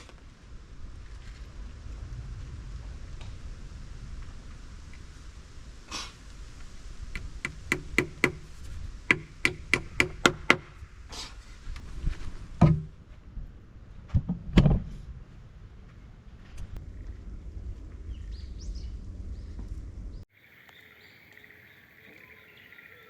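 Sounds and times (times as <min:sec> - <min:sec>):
sharp knocks on wood: 0:07.4 - 0:08.4, 0:09.1 - 0:10.8.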